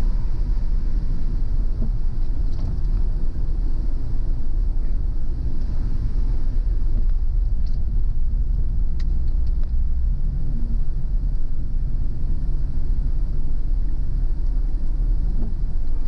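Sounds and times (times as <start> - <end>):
car tyres and engine rumble: 0.0 - 16.0.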